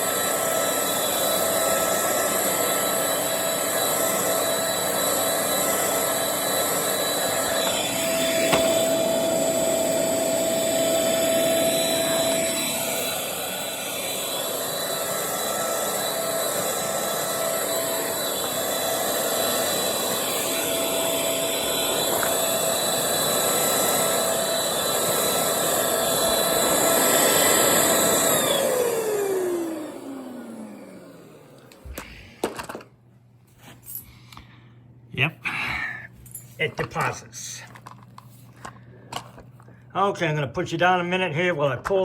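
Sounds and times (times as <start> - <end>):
stick vacuum whining: 0.0 - 33.0.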